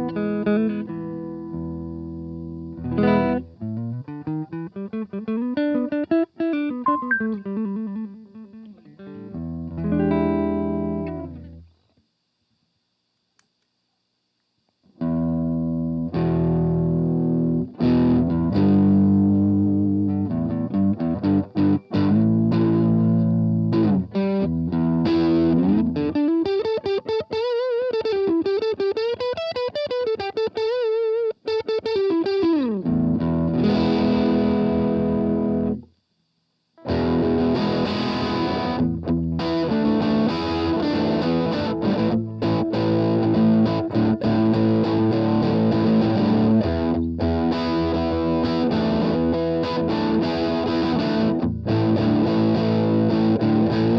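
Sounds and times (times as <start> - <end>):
distorted electric guitar: 0.0 - 11.7, 15.0 - 35.9, 36.8 - 53.9.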